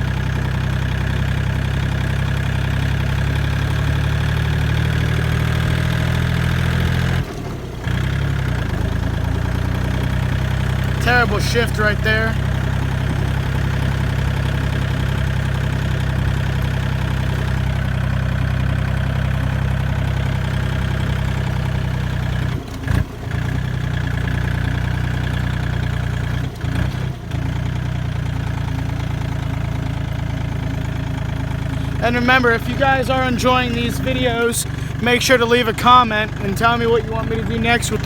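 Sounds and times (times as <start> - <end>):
diesel tractor engine running: 0.0 - 38.0.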